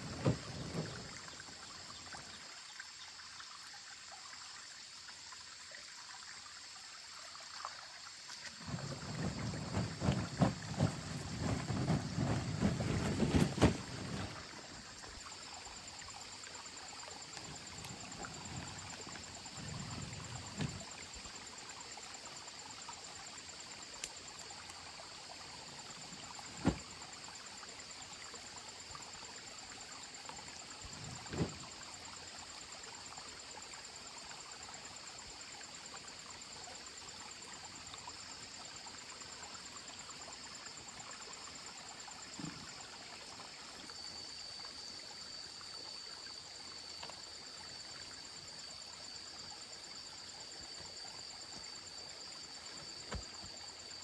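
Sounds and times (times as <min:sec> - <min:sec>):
insects chirring: 0:00.0 - 0:54.0.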